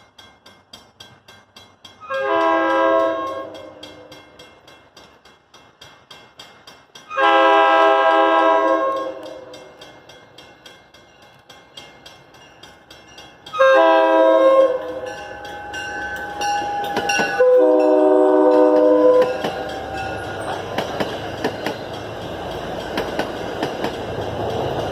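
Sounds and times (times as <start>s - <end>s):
regular clicking: 0.0s - 7.2s, 8.6s - 13.6s, 18.8s - 24.9s
locomotive air horn blasts: 2.0s - 4.1s, 7.1s - 9.5s, 13.6s - 15.0s, 17.4s - 19.4s.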